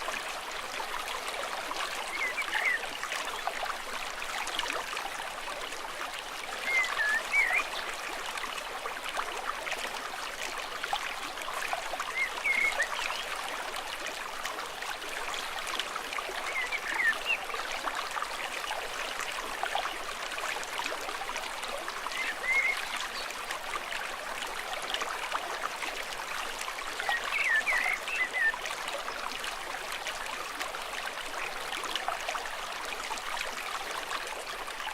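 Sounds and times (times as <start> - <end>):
stream rushing: 6.2 - 9.0, 16.5 - 31.2.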